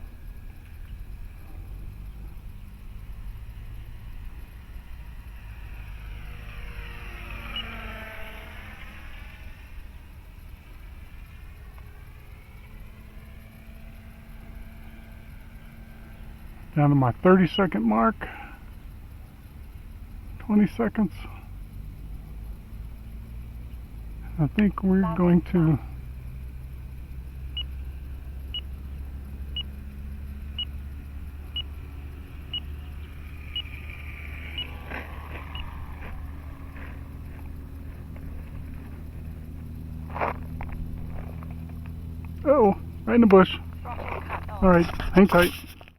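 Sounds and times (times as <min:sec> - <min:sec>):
electric motor whine: 0:00.0 - 0:16.8, 0:26.6 - 0:45.3
rc plane propeller droning: 0:00.0 - 0:45.9
steady low rumble: 0:09.0 - 0:45.9.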